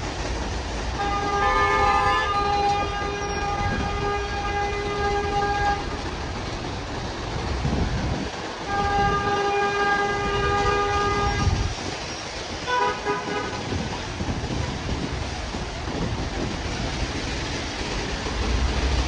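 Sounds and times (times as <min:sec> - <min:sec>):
street traffic: 0:00.0 - 0:19.0
vehicle horn blasts: 0:01.0 - 0:05.8.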